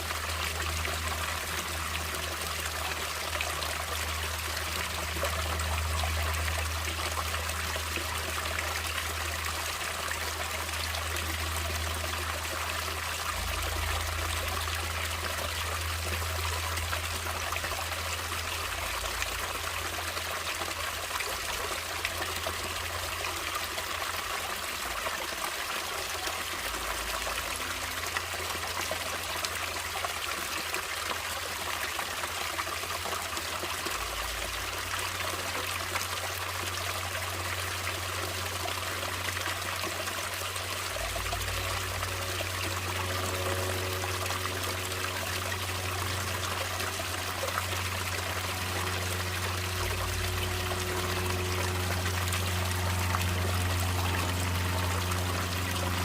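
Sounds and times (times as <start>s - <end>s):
stream trickling and splashing: 0.0s - 56.0s
low rumble: 40.8s - 56.0s.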